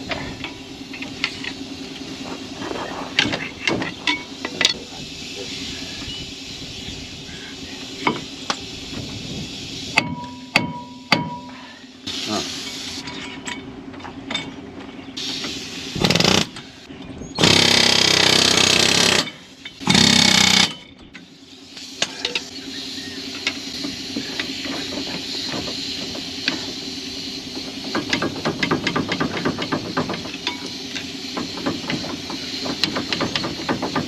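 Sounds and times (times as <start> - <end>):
machine hum: 0.0 - 29.3
pneumatic air tool bursts: 15.2 - 16.8, 17.4 - 20.8.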